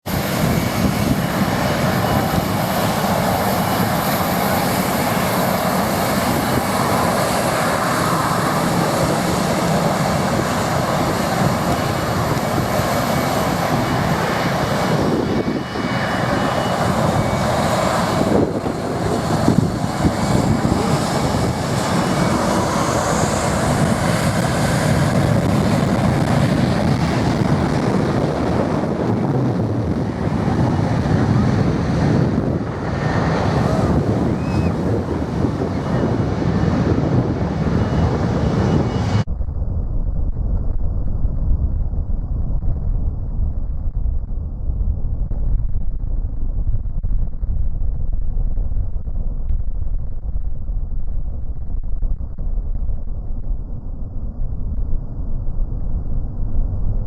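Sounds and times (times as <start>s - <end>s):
jet engines roaring: 0.0s - 39.5s
faint high whine: 0.1s - 57.0s.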